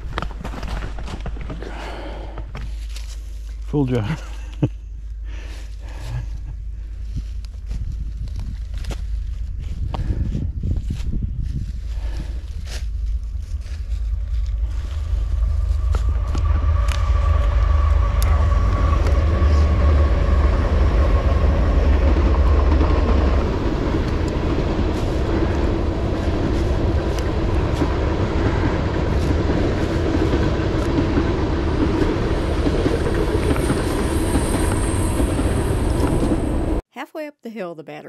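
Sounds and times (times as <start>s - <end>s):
train rumbling on tracks: 0.0s - 36.8s
dry leaves crunching underfoot: 2.6s - 3.7s, 6.8s - 17.5s.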